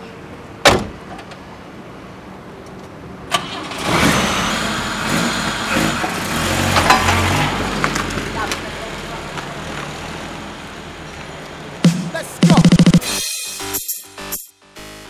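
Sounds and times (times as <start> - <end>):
car door shutting: 0.6 - 1.4
car engine cranking and running: 3.3 - 10.0.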